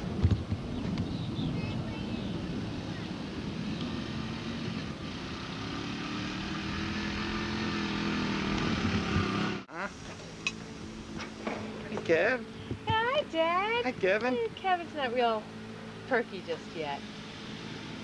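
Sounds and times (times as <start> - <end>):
small engine revving: 2.6 - 9.7, 14.9 - 18.0.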